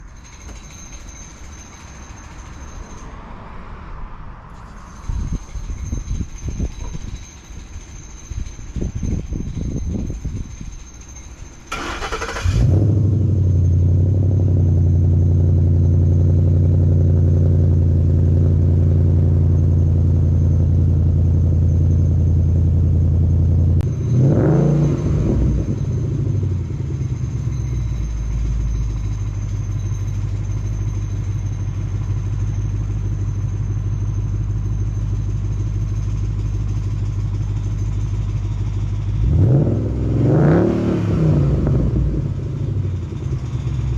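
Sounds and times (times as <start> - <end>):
car engine starting and idling: 10.8 - 43.9
engine revving: 11.7 - 19.6, 23.8 - 28.4, 39.0 - 43.9.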